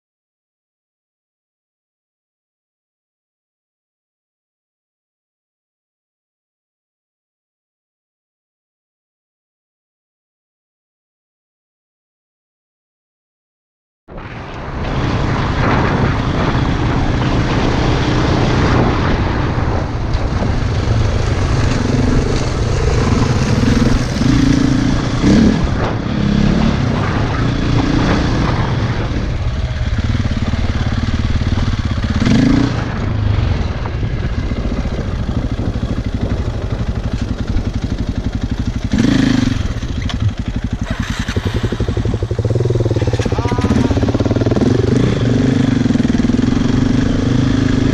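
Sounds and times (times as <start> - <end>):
steady rush of noise: 14.1 - 47.9
motorcycle engine while riding: 14.3 - 47.9.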